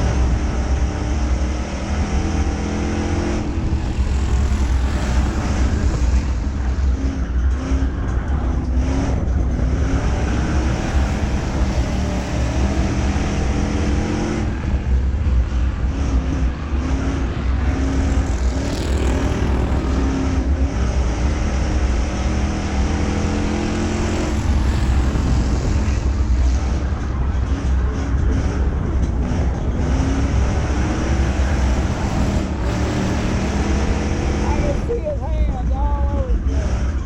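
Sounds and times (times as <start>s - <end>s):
race car engine revving: 0.0s - 35.6s.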